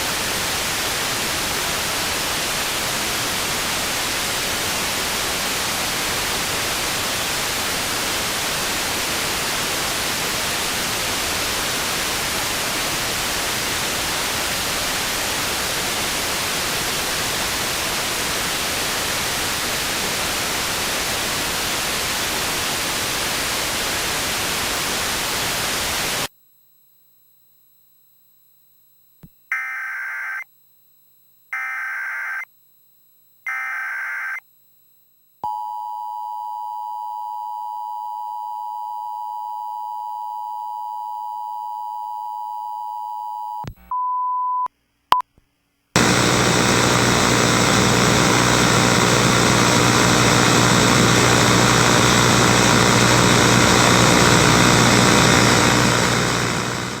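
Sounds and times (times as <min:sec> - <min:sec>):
loud static hiss: 0:00.0 - 0:26.3, 0:46.0 - 0:57.0.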